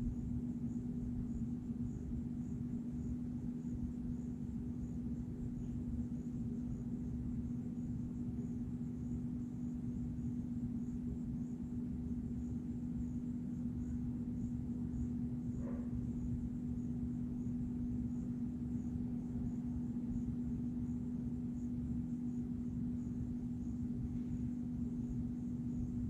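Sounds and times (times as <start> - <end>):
low-pitched hum: 15.5 - 16.8.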